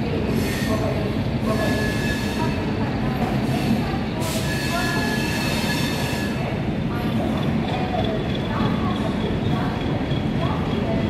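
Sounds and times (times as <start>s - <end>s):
rumble of wheels on rail: 0.0s - 11.0s
high wheel squeals: 1.5s - 2.6s.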